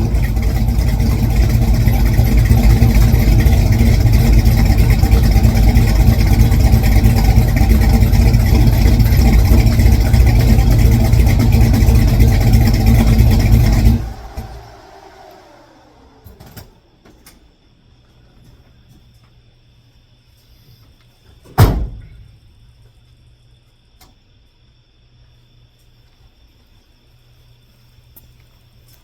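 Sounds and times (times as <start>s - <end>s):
car engine running: 0.0s - 16.5s.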